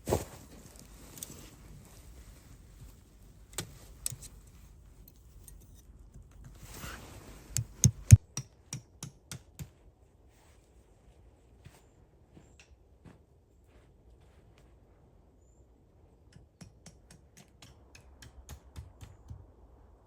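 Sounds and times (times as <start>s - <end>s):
sharp clicks and knocks: 7.6s - 9.5s.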